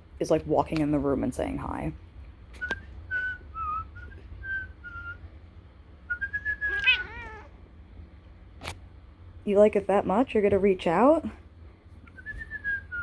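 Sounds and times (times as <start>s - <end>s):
person whistling: 2.6s - 5.2s, 6.1s - 7.0s, 12.2s - 13.0s
cat chirping: 6.3s - 7.6s.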